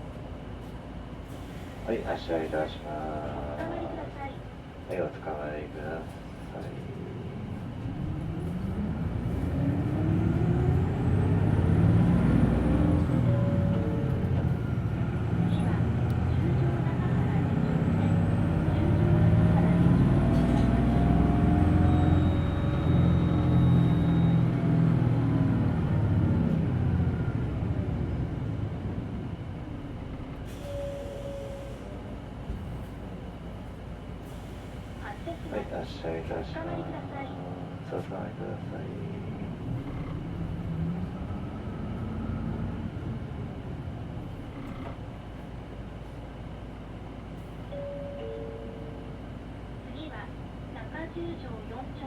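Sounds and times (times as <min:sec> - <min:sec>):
bus diesel engine revving: 0:06.9 - 0:36.1, 0:36.9 - 0:47.6
brief steady tone: 0:21.9 - 0:24.5, 0:30.6 - 0:31.8.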